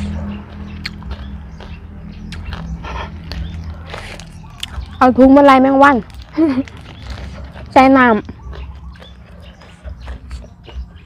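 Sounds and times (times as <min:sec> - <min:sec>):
faint bird chirp: 0:06.6 - 0:11.0.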